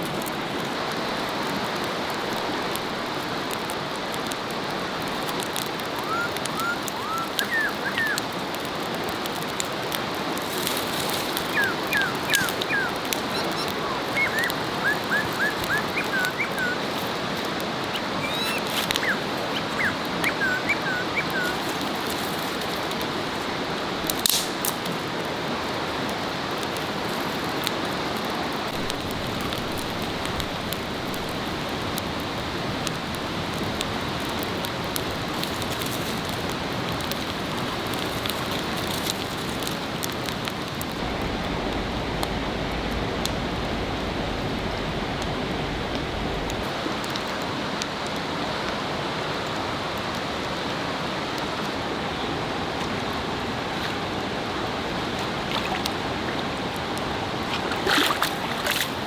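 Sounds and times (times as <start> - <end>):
steady outdoor hiss: 0.0 - 59.0
short high animal calls: 18.0 - 21.6
sharp click: 24.2 - 24.8.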